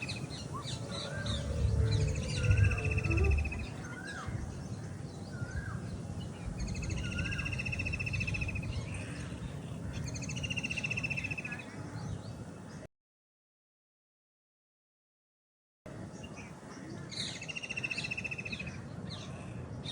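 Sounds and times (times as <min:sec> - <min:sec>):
rapid trilled bird call: 0:00.0 - 0:04.2
bird chirps: 0:00.0 - 0:04.6
low rumble: 0:00.0 - 0:04.6
outdoor background noise: 0:00.0 - 0:12.9, 0:15.9 - 0:19.9.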